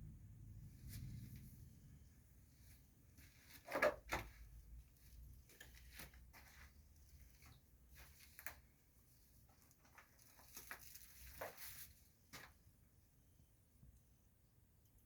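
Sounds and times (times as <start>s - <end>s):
faint scuffs and rustles: 2.4s - 12.7s.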